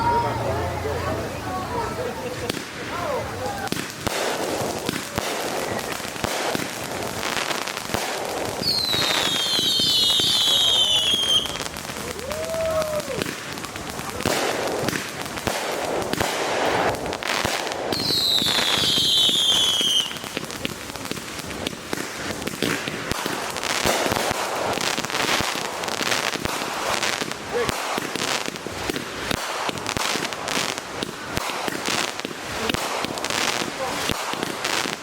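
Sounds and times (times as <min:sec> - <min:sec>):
fireworks bangs and crackles: 0:00.0 - 0:35.0
falling firework whistle: 0:08.5 - 0:13.4, 0:17.9 - 0:20.3.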